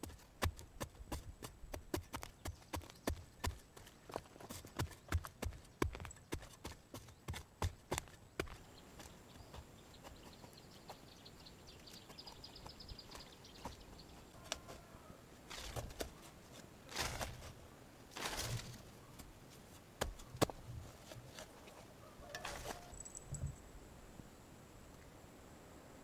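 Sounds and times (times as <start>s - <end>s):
rustling swishes: 15.5s - 23.1s.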